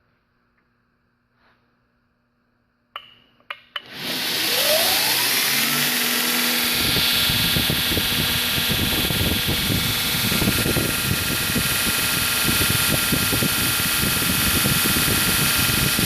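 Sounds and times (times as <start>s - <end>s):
belt grinder motor whine: 3.8s - 16.0s.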